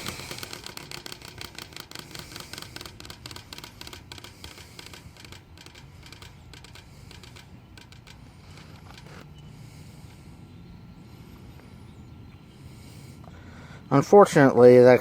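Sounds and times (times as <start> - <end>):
power cord ticking against fan blade: 0.0 - 10.2
fan blade coasting down: 0.0 - 13.8.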